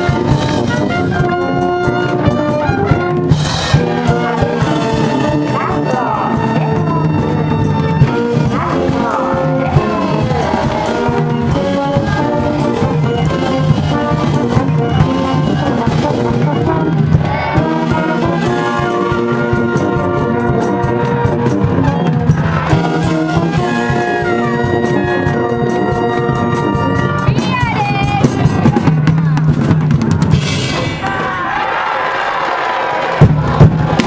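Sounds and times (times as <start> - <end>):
trumpets playing melody: 0.0 - 28.9
steady drum beat: 0.0 - 32.0, 33.0 - 34.0.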